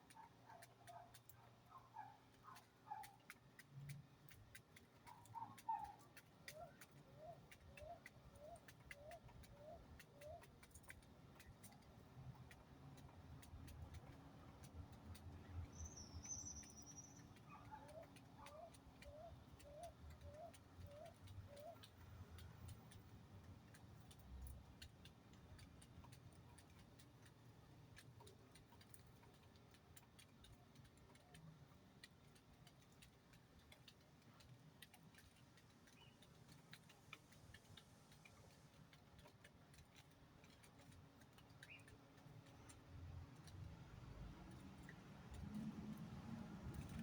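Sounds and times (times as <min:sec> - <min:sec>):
steady faint ticking: 0:00.0 - 0:47.0
high bird chirp: 0:15.7 - 0:17.3.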